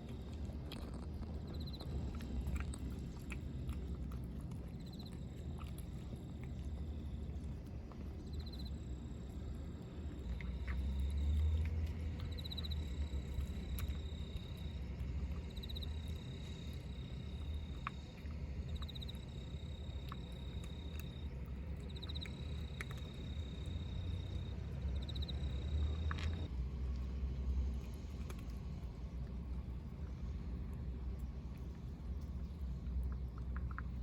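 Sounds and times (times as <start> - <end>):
low outdoor rumble: 0.0 - 34.0.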